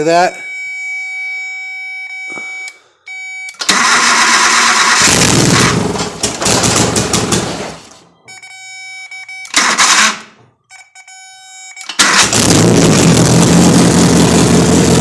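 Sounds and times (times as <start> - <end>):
car engine starting and running: 3.1 - 8.0, 9.4 - 10.5, 11.8 - 15.0.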